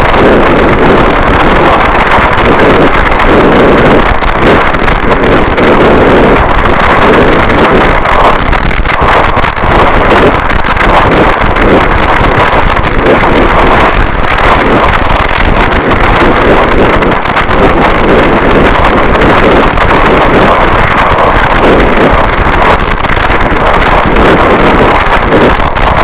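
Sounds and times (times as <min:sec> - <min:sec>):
loud distorted static: 0:00.0 - 0:26.0.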